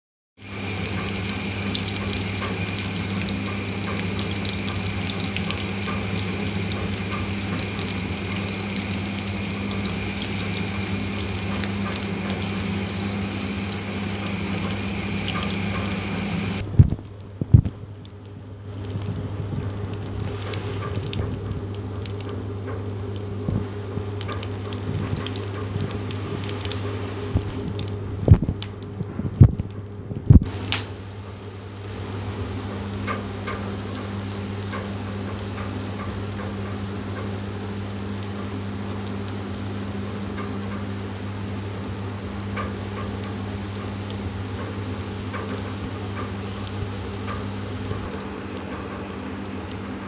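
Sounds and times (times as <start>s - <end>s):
food sizzling in a pan: 0.4s - 16.6s, 30.5s - 50.0s.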